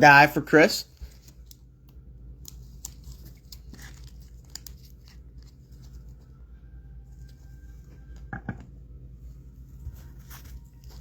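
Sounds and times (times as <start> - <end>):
trading cards rustling: 0.8 - 6.4.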